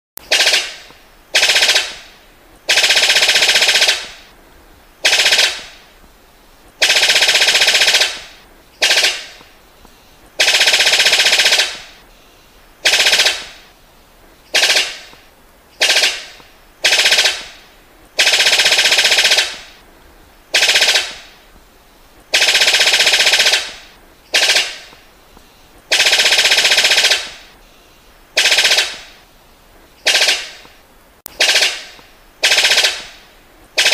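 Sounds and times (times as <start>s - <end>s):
bird rattling calls: 6.8s - 9.4s, 14.4s - 15.1s, 15.7s - 17.6s, 22.3s - 24.9s.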